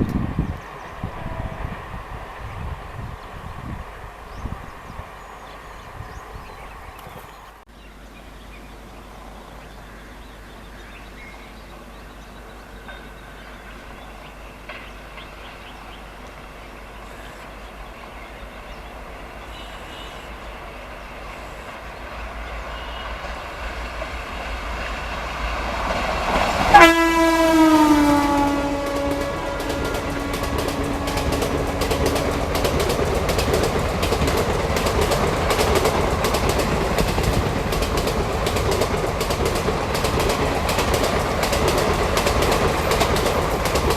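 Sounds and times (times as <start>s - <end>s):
train rumble: 0.0s - 43.9s
train horn: 0.8s - 2.2s, 19.5s - 20.4s, 22.3s - 23.5s, 26.5s - 33.1s.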